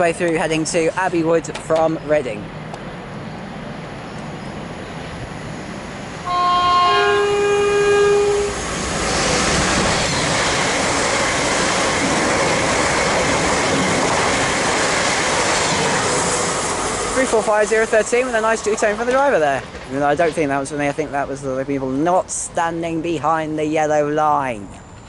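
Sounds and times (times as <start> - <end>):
train rushing through station: 0.0 - 25.0
train two-tone horn: 6.2 - 8.7.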